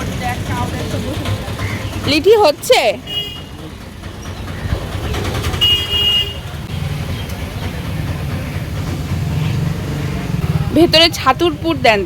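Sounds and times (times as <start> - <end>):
low engine rumble: 0.0 - 12.0
vehicle horn honk: 3.1 - 3.6, 5.6 - 6.6.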